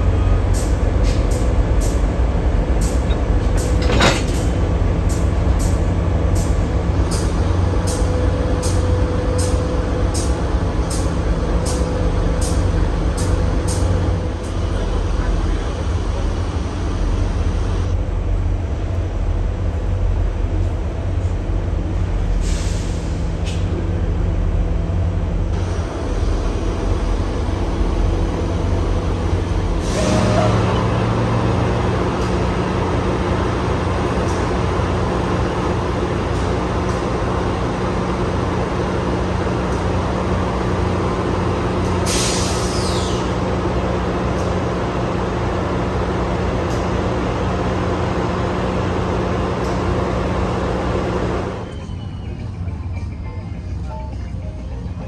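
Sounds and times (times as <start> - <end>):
locomotive engine drone: 0.0 - 55.0
air hissing: 41.8 - 43.4.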